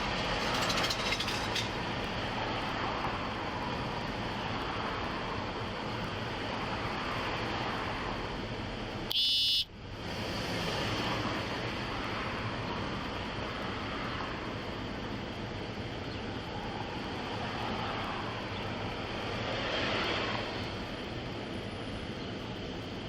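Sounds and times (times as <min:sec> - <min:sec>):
street traffic: 0:00.0 - 0:23.0
high electronic beep: 0:09.1 - 0:09.7.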